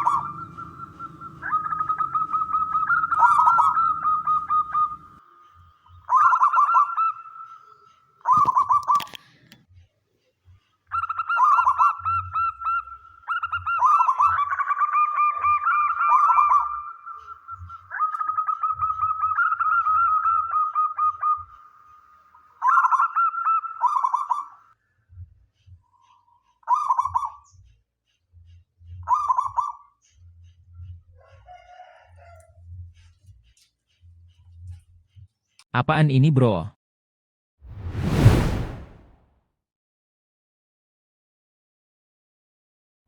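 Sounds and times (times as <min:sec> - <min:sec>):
dove trilled cooing: 0:00.0 - 0:05.1.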